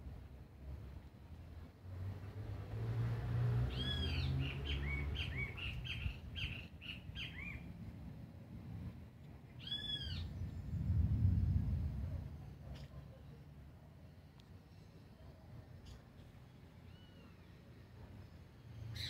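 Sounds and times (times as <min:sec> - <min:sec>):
bird chirping: 0:03.7 - 0:07.7, 0:15.8 - 0:19.0
low rumble: 0:10.2 - 0:12.7.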